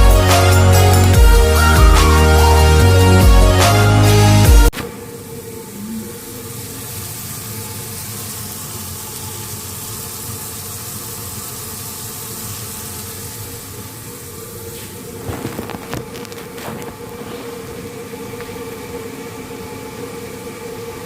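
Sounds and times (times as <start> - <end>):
low even hum: 0.0 - 8.6
chicken sizzling in a pan: 5.4 - 16.0.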